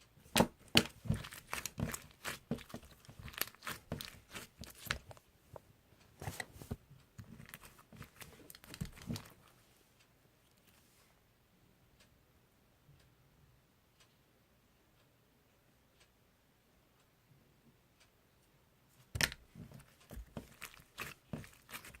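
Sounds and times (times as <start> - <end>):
crinkling and tearing: 0.4 - 5.2, 6.2 - 9.5, 19.2 - 22.0.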